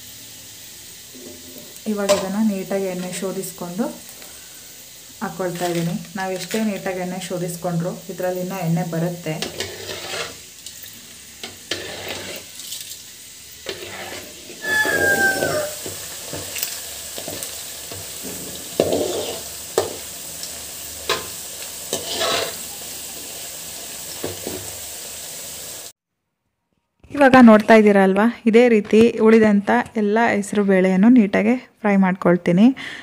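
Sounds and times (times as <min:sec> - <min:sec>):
food sizzling in hot oil: 0:00.0 - 0:26.0
strainer scraping a pan: 0:05.4 - 0:06.8, 0:09.3 - 0:10.5, 0:11.4 - 0:12.6, 0:13.6 - 0:20.0, 0:21.9 - 0:22.8.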